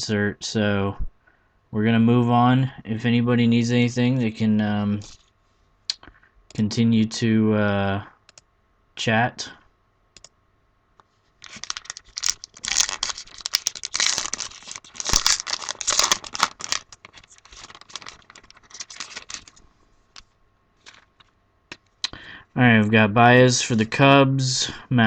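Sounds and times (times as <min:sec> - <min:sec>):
wrapper being torn and crinkled: 0:11.4 - 0:19.6, 0:20.2 - 0:21.3.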